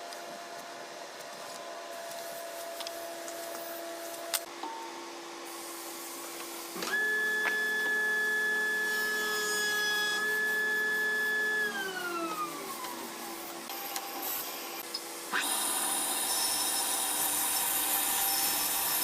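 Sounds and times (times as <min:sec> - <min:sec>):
power tool motor whining: 0:06.8 - 0:13.0, 0:15.3 - 0:19.0.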